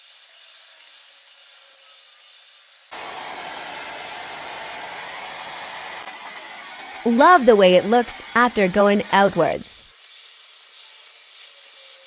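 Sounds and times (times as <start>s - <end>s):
hair dryer blowing air: 2.9s - 7.1s.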